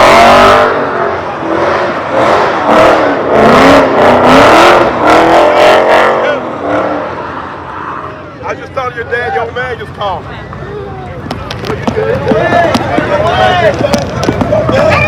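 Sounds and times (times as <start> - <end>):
car engine revving: 0.0 - 8.4.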